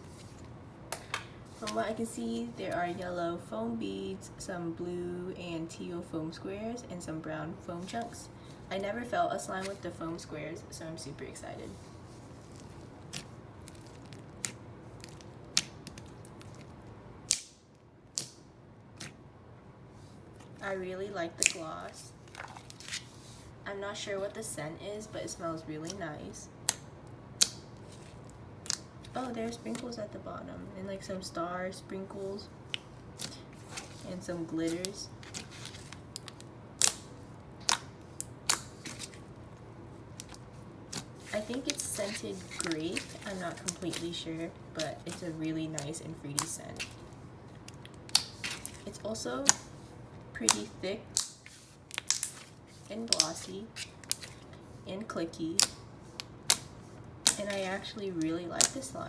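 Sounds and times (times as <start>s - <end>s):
foam slime squishing: 11.6s - 16.8s, 21.4s - 23.5s, 40.1s - 49.8s.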